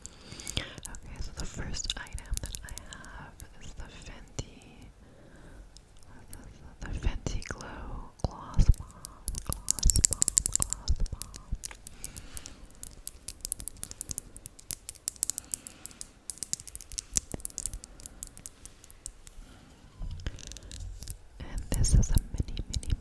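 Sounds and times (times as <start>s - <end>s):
fast irregular tapping: 0.0s - 3.6s, 8.3s - 19.4s
light scratching: 8.3s - 23.0s.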